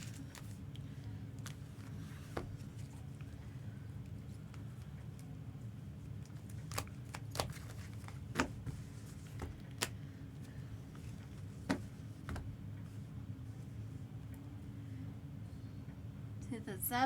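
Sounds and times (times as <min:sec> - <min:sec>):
low steady hum: 0:00.0 - 0:17.0
cards and packaging clicking: 0:06.2 - 0:08.6.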